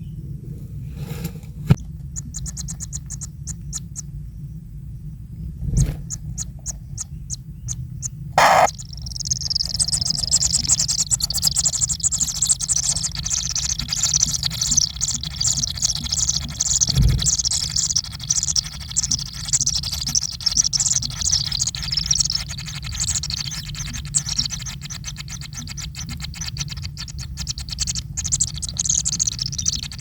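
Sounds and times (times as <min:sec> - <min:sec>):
chicks calling: 0:06.7 - 0:21.4, 0:23.4 - 0:30.0.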